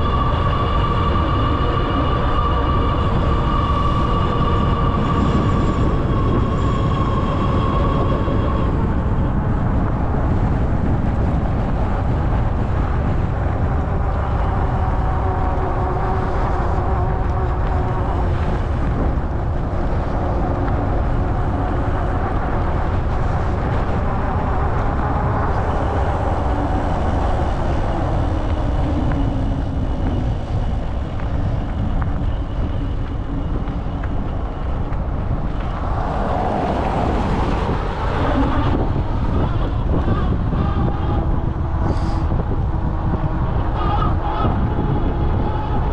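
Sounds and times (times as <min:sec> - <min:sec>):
wind buffeting microphone: 0:00.0 - 0:45.9
tyres rolling on road: 0:20.8 - 0:40.6.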